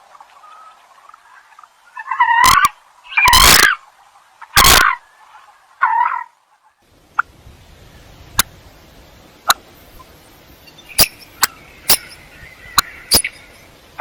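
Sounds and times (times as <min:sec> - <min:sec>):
fainter bird calling: 0:00.2 - 0:03.8, 0:09.5 - 0:14.0
coot calling sharp notes: 0:02.0 - 0:03.8, 0:04.6 - 0:05.0.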